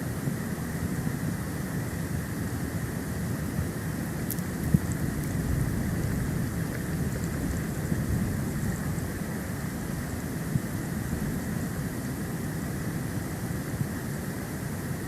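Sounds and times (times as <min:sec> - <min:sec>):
wind buffeting microphone: 0:04.4 - 0:11.5.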